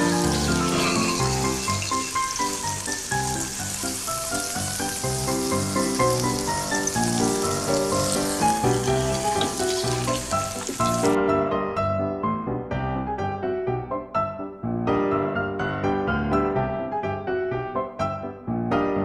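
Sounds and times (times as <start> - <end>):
fish sizzling in hot oil: 0.0 - 11.2
instrumental background music: 0.0 - 19.0.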